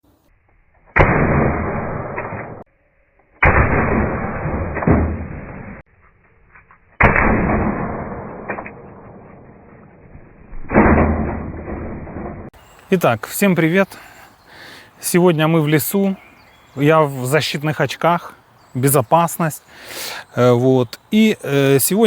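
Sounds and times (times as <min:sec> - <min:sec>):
air pistol shots: 0:00.9 - 0:02.6, 0:03.4 - 0:05.2, 0:07.0 - 0:09.1.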